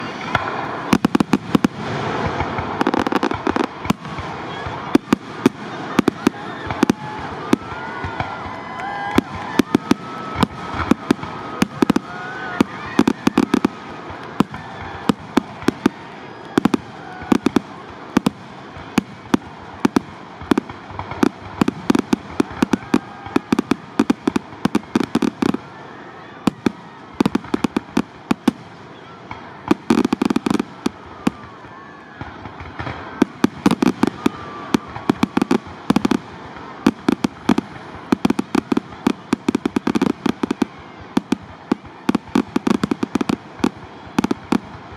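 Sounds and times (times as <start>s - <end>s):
fireworks bursting in sharp bangs: 0.0s - 44.9s.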